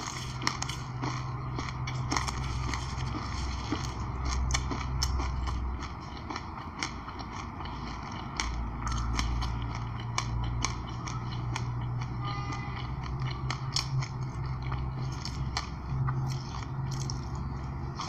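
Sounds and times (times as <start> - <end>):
seeds crunching while chewing: 0.0 - 18.0
steady low hum: 0.0 - 18.0.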